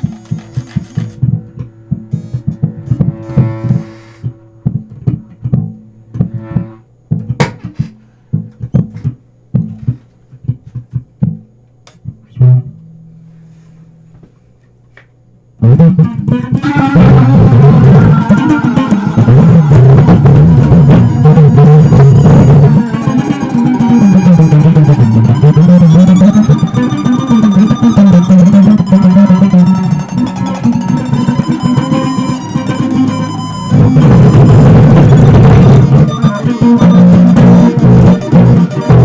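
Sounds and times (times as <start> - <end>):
electric bass and guitar plucking: 0.0 - 13.3, 15.6 - 39.0
band playing with drums: 16.6 - 39.0.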